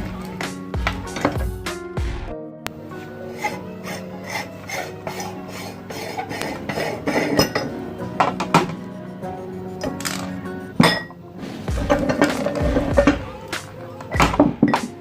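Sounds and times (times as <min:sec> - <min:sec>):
meat grinder scraping: 0:03.2 - 0:10.4.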